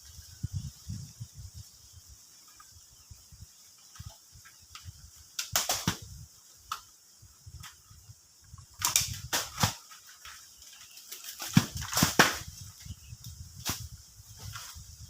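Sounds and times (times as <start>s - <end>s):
wind rumbling on microphone: 0.0s - 9.8s, 11.5s - 15.0s
sharp crackling rustle: 8.6s - 15.0s.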